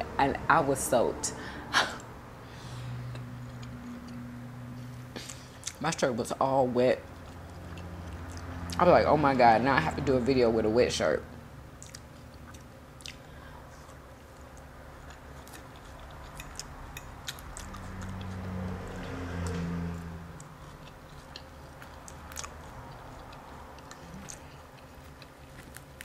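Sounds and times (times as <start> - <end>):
chewing and biting: 3.1 - 6.1, 7.0 - 8.8, 11.7 - 26.0.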